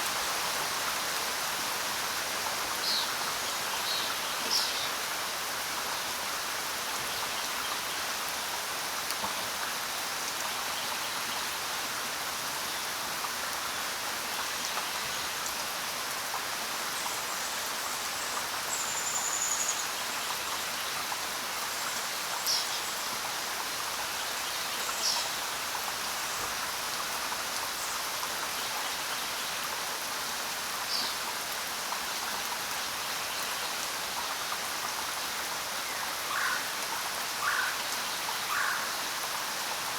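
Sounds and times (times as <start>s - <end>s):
rain falling on ground: 0.0s - 39.9s.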